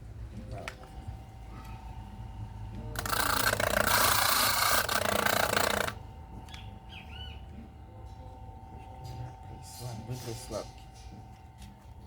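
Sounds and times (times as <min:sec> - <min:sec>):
saw motor humming: 0:02.5 - 0:07.7
power saw cutting wood: 0:03.0 - 0:06.0.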